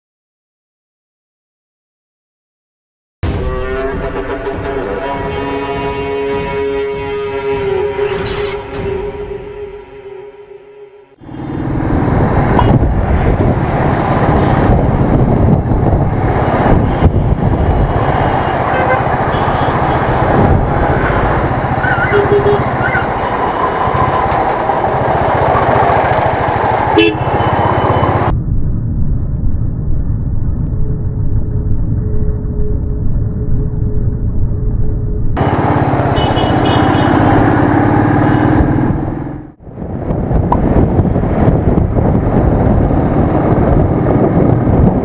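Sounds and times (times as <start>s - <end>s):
wind and road noise: 3.2s - 10.2s, 11.2s - 45.0s
vehicle horn toots: 3.2s - 11.4s, 12.6s - 12.8s, 18.6s - 20.3s, 21.2s - 23.4s, 26.9s - 28.3s, 35.4s - 37.5s, 38.2s - 38.7s.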